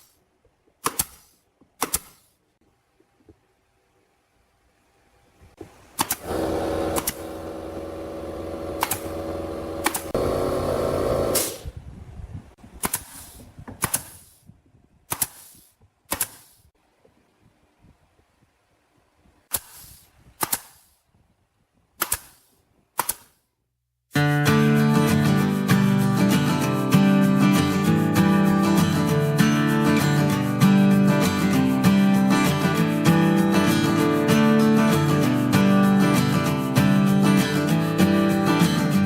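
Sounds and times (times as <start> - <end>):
sharp clicks: 6.0 - 7.4, 8.7 - 10.3, 15.1 - 16.6, 20.4 - 20.9, 22.0 - 23.4
power tool motor running: 6.1 - 11.8
acoustic guitar music: 24.2 - 39.0.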